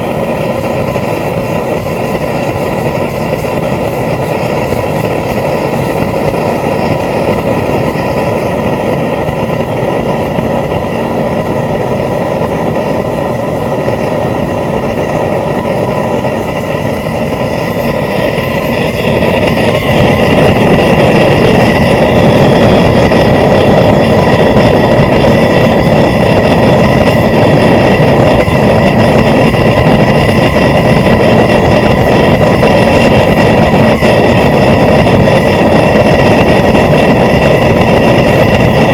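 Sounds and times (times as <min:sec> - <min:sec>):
propane burner roaring: 0:00.0 - 0:38.9.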